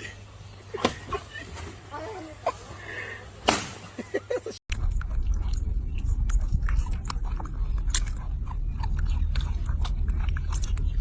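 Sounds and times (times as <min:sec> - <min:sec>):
crunchy chewing: 0:04.7 - 0:11.0
steady low hum: 0:04.7 - 0:11.0.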